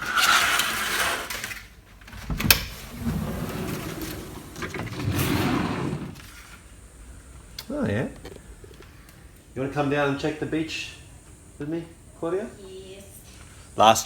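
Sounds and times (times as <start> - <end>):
curtains sliding along track: 0.0 - 6.6
sliding door rolling open: 0.1 - 6.6.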